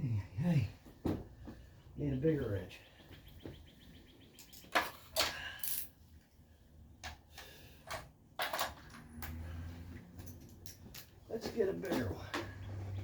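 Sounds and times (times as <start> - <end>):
metal wrenches clinking: 7.8 - 9.6, 10.2 - 11.2.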